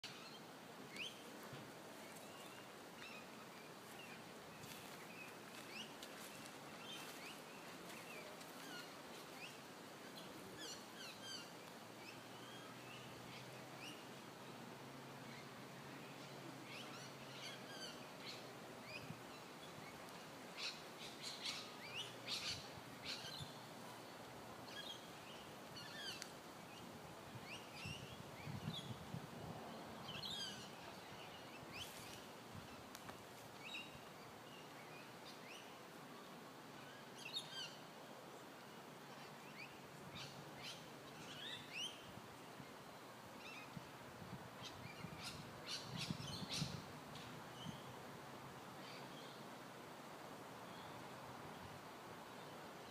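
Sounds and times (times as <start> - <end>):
faint steady hiss: 0.0 - 52.9.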